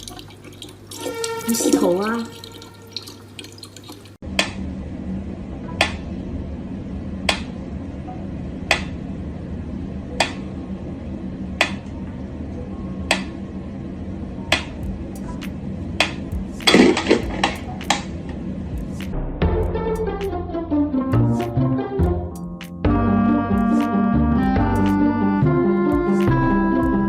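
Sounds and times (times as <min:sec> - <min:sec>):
steady low hum: 0:04.2 - 0:21.0.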